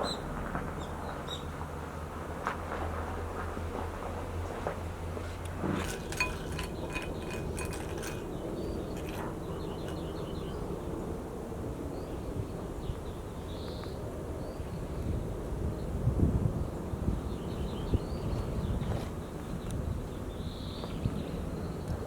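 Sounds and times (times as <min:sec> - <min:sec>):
outdoor background noise: 0:00.0 - 0:22.0
light ringing clinks: 0:05.6 - 0:10.2
small birds chirping: 0:05.8 - 0:11.2, 0:17.2 - 0:22.0.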